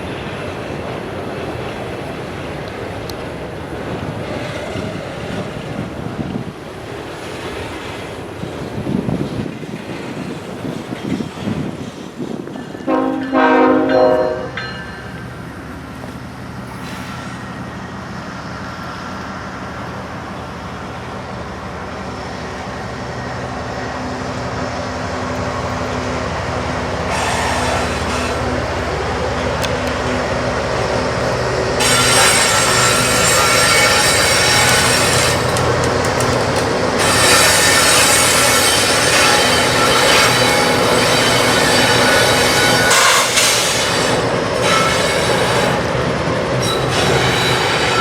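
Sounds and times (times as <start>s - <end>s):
train engine rumble: 0.0s - 48.0s
wheels squealing on rails: 25.5s - 48.0s.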